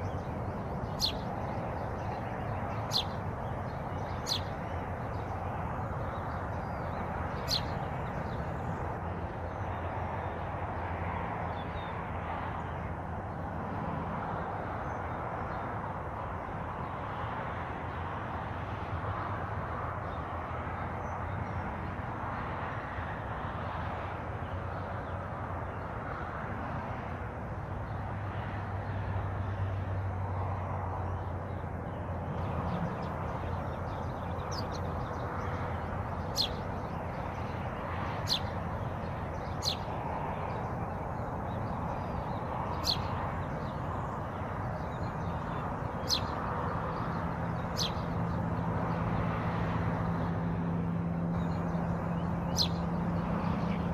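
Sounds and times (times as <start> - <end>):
songbird calls: 0.0 - 8.7, 32.7 - 37.6, 38.2 - 48.4, 51.4 - 53.0.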